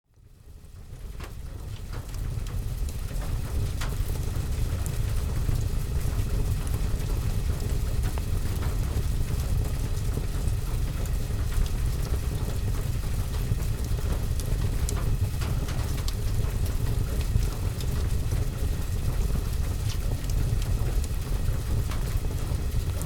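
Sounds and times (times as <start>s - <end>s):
rain on a roof: 0.2s - 23.0s
fireplace crackling: 8.0s - 23.0s.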